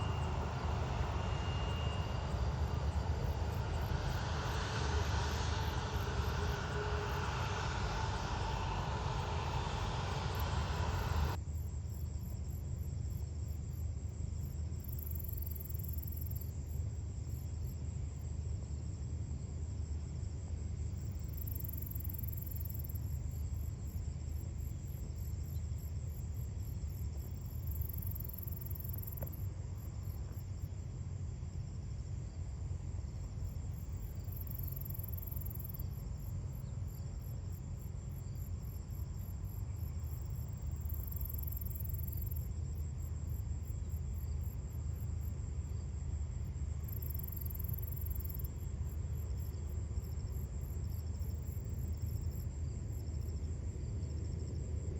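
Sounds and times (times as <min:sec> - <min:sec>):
airliner engines rushing: 0:00.0 - 0:11.9
low steady rumble: 0:00.0 - 0:54.9
insects trilling: 0:21.0 - 0:54.6.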